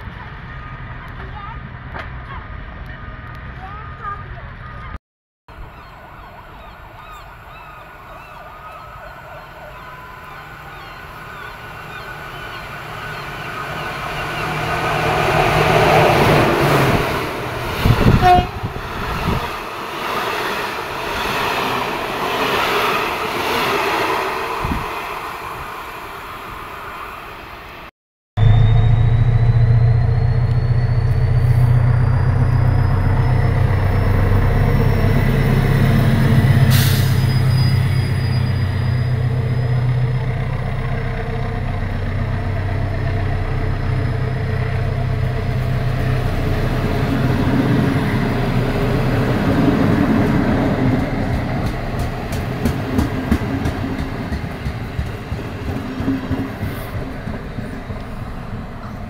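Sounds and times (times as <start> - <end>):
diesel locomotive engine drone: 0.0 - 59.0
train wheels rumbling on rails: 8.2 - 27.0, 28.4 - 59.0
thin rising whine: 28.4 - 51.9.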